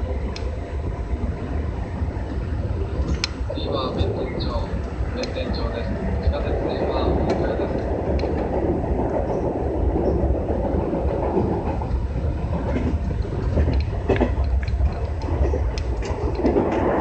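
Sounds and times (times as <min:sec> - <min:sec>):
wheels clicking over rail joints: 0:00.0 - 0:17.0
wheels rumbling on rail: 0:00.0 - 0:17.0.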